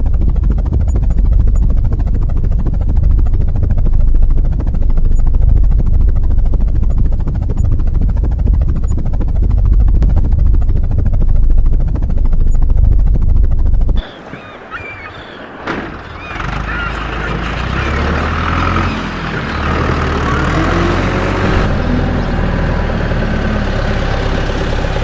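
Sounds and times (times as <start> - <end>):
heavy vehicle engine rumbling: 15.5 - 25.0.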